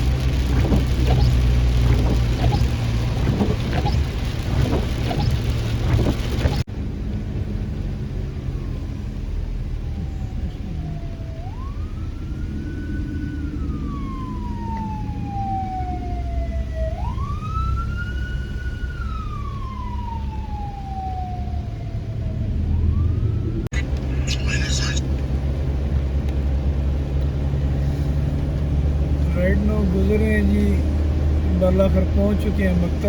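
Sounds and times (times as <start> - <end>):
road traffic rumble: 0.0 - 33.0
emergency siren wailing: 8.4 - 23.7.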